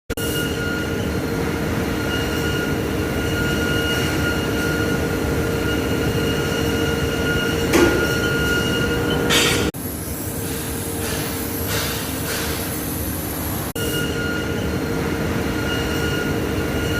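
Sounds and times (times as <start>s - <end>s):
machine whine and rumble: 0.1s - 16.9s.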